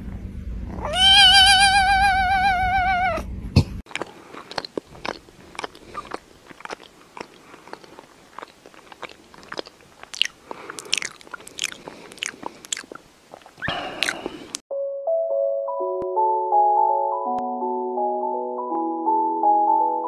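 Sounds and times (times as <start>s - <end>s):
crunchy chewing: 3.9s - 14.6s.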